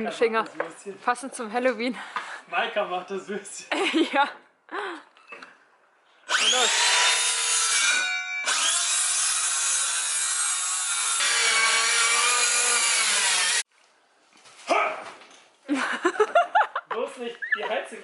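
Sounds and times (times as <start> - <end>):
power saw cutting wood: 6.3 - 13.7.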